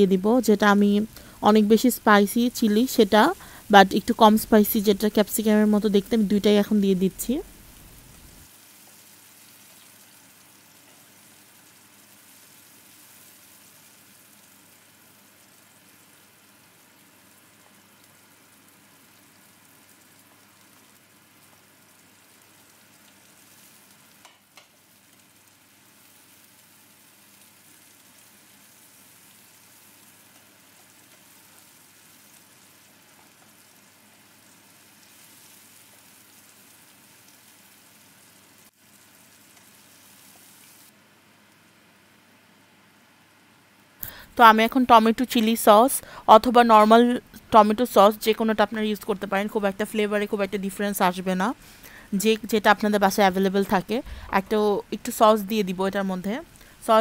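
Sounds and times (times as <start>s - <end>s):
food sizzling in hot oil: 0.0s - 41.0s, 44.0s - 57.0s
spatula stirring in pan: 20.7s - 37.5s, 39.0s - 40.8s.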